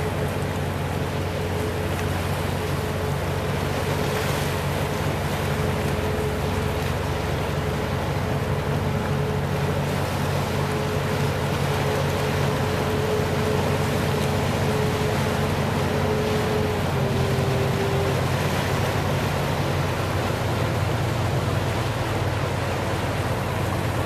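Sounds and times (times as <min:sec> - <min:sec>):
boat engine humming: 0:00.0 - 0:24.0
sea noise: 0:00.0 - 0:24.0
wind: 0:00.0 - 0:24.0.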